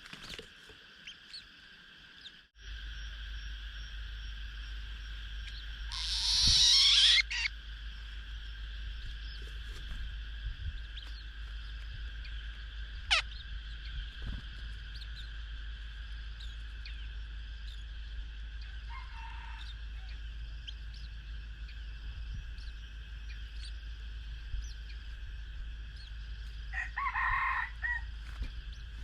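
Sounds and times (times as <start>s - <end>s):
steady high background noise: 0.0s - 29.0s
rooster crowing: 18.6s - 20.2s, 26.7s - 28.2s.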